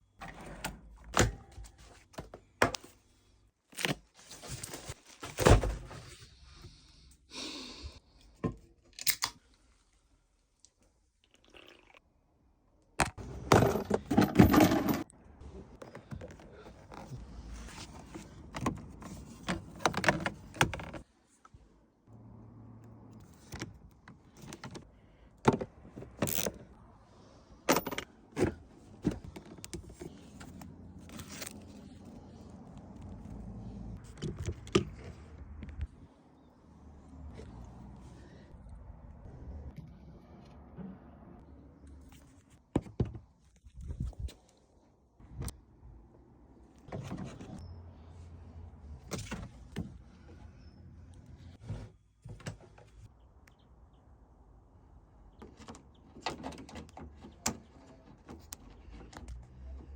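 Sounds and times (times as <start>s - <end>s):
tools knocking and clunking: 13.0s - 15.1s
rattling and scraping: 13.2s - 21.1s.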